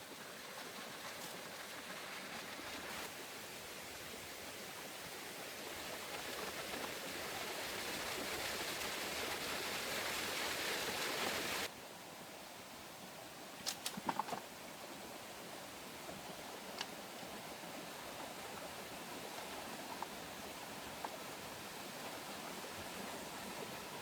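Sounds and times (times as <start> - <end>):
running water rushing: 0.0 - 11.7, 13.9 - 24.0.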